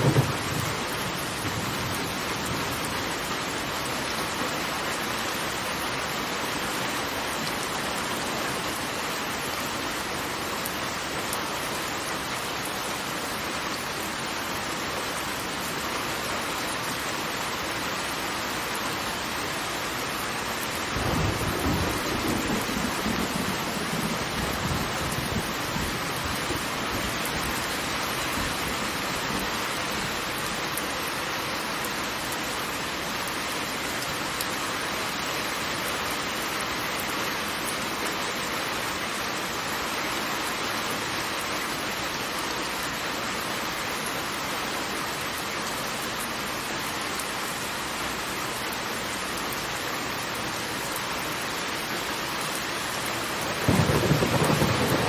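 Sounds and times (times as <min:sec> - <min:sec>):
heavily falling water hissing: 0:46.4 - 0:55.0.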